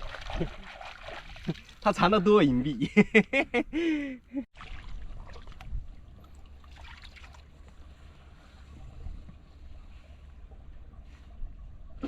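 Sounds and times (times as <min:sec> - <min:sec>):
water splashing and sloshing: 0:00.0 - 0:02.6, 0:04.5 - 0:12.0.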